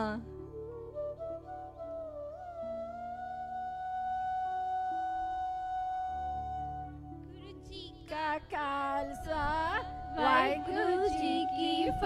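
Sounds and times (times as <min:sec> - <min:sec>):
child singing through microphone: 0:07.3 - 0:12.0.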